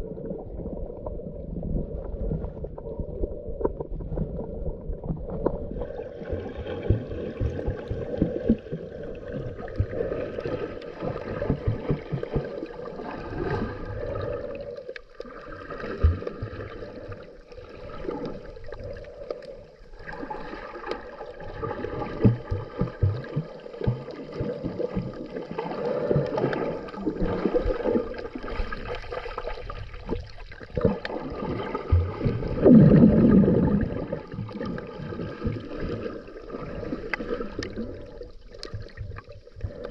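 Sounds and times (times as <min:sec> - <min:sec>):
muffled underwater movement: 0:00.0 - 0:39.9
gurgling water rush: 0:04.4 - 0:39.9.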